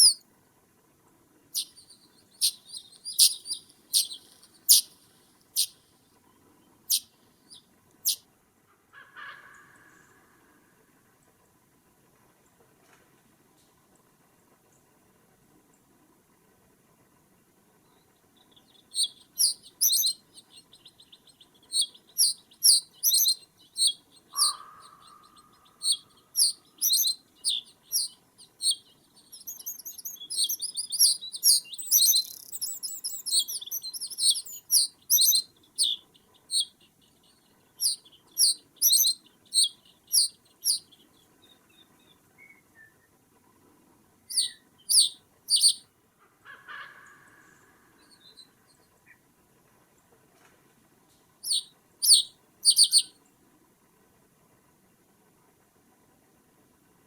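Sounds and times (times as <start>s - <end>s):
songbirds chirping high-pitched: 0.0s - 0.2s, 1.5s - 8.2s, 17.8s - 43.1s, 44.3s - 45.8s, 47.4s - 49.2s, 51.4s - 53.2s
lower single bird call: 21.8s - 28.1s.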